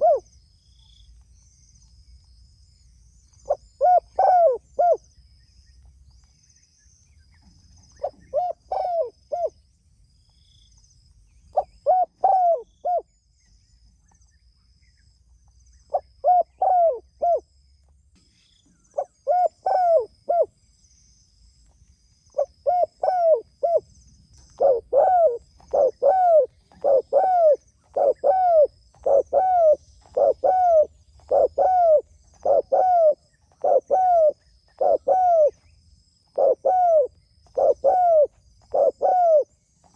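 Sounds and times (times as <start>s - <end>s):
dove cooing: 0.0s - 0.3s, 3.5s - 5.0s, 8.0s - 9.6s, 11.6s - 13.1s, 15.9s - 17.4s, 19.0s - 20.5s, 22.4s - 23.9s, 24.5s - 35.6s, 36.3s - 39.5s.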